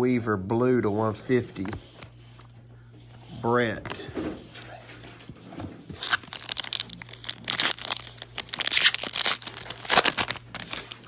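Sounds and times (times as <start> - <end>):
wrappers tearing and crinkling: 5.9 - 11.0.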